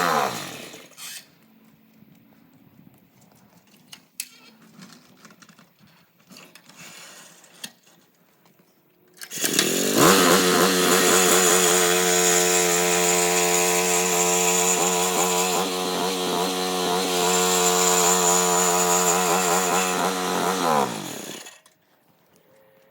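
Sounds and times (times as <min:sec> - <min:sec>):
concrete saw running: 0:00.0 - 0:01.2, 0:09.2 - 0:21.7.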